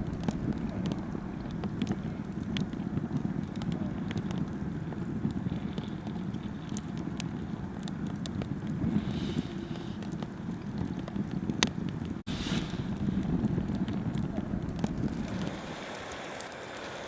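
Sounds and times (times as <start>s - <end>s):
low steady rumble: 0.0s - 5.8s, 12.0s - 17.0s
sharp crackles and ticks: 0.0s - 17.0s.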